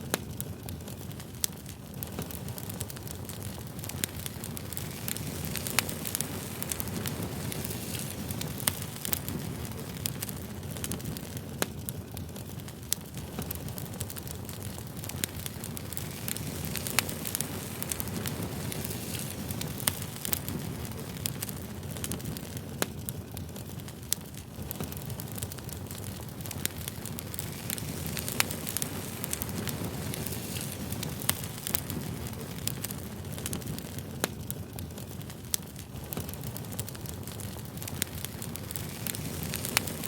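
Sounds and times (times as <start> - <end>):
campfire flames rushing: 0.0 - 40.0
wood crackling and popping: 0.0 - 40.0.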